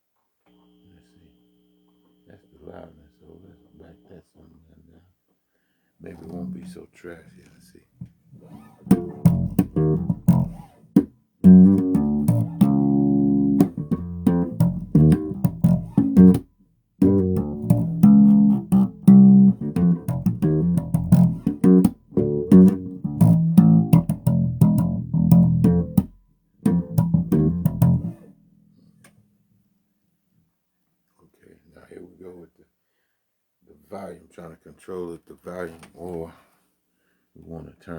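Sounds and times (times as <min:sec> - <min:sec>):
electric bass guitar notes: 0:06.2 - 0:06.9, 0:08.4 - 0:10.8, 0:11.4 - 0:29.0.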